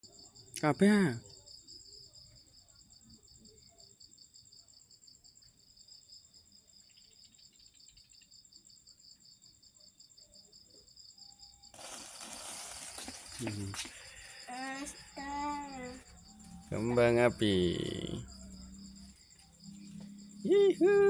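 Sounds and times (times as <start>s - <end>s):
insects chirping: 0.0s - 21.0s
loud hiss: 11.8s - 16.0s.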